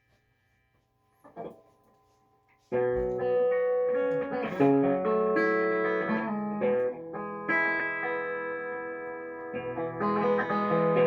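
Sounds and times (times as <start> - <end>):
electric guitar chords: 2.8 - 11.0.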